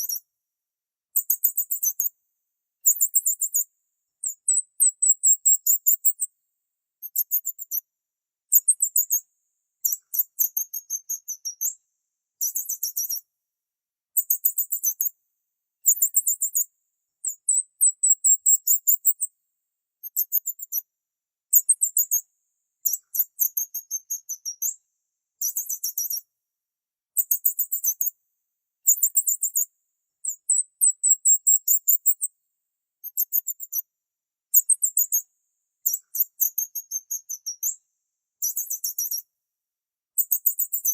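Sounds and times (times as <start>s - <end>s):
small bird chirping: 0.0s - 0.3s, 1.1s - 2.2s, 2.8s - 6.3s, 7.0s - 7.9s, 8.5s - 11.8s, 12.4s - 13.3s, 14.2s - 15.2s, 15.8s - 19.3s, 20.0s - 20.9s, 21.5s - 24.8s, 25.4s - 26.3s, 27.2s - 28.2s, 28.8s - 32.3s, 33.0s - 33.9s, 34.5s - 37.8s, 38.4s - 39.3s, 40.2s - 40.9s.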